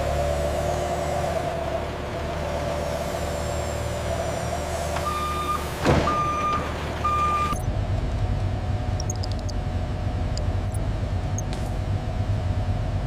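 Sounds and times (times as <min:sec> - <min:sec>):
machinery hum: 0:00.0 - 0:13.0
electronic warning beeps: 0:09.0 - 0:09.6.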